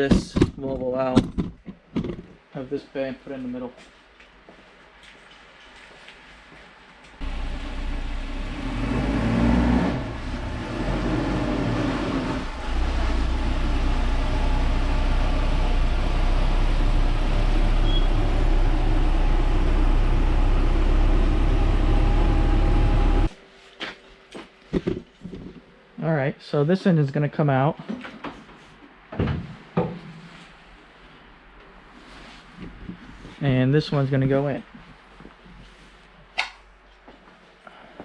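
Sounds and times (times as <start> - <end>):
car engine revving: 7.2 - 23.3.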